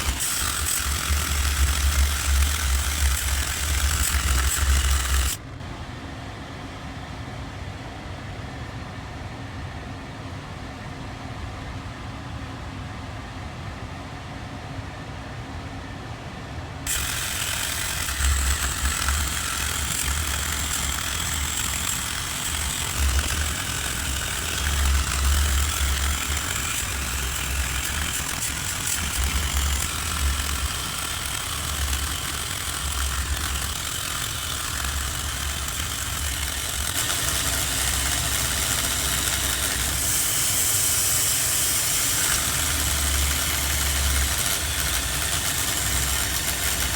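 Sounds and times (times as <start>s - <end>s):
machine rumbling: 0.0s - 5.7s, 16.9s - 46.9s
broad hiss: 38.4s - 46.8s.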